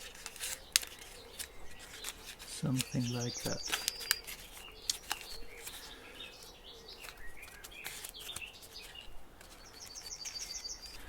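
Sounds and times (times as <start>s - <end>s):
songbirds chirping: 0.0s - 11.0s
bird trill of high notes: 2.8s - 4.1s.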